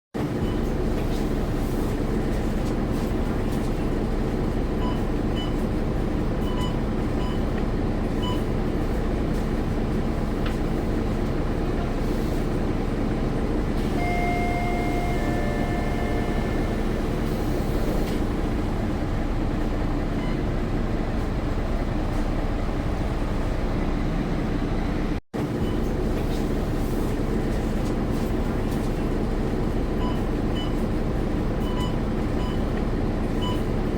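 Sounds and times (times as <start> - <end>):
bus engine drone: 0.2 - 33.9
short beeps: 13.8 - 16.9
two-note door chime: 13.9 - 16.8.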